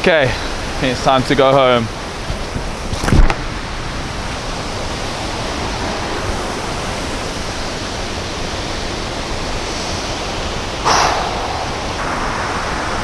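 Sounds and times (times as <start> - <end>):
waterfall roaring: 0.0 - 13.0
brief burst of noise: 10.8 - 13.0.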